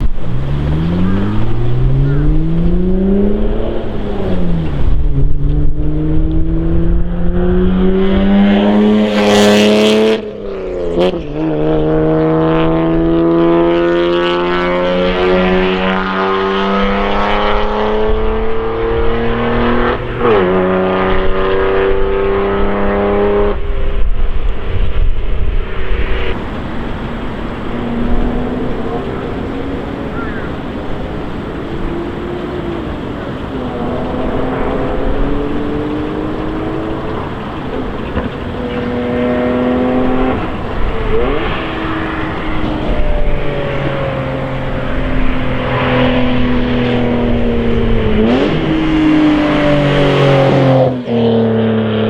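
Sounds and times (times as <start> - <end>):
car engine accelerating hard: 0.0 - 52.0.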